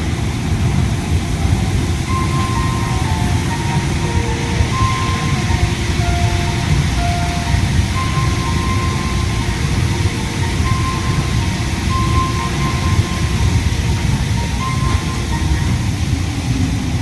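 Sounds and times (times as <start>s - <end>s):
air conditioning noise: 0.0s - 17.0s
train running rumble: 0.0s - 17.0s
faint high tone: 2.1s - 16.1s.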